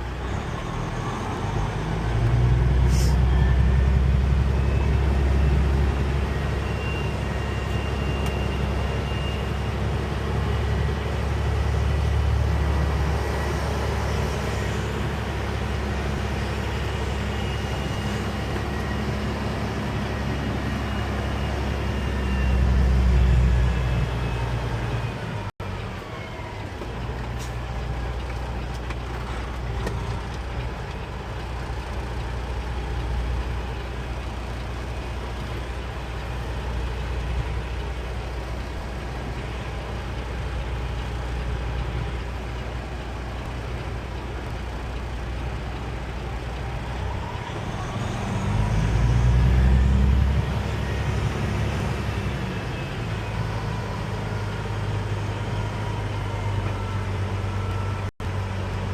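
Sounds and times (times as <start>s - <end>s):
truck diesel engine droning: 0.0s - 58.9s.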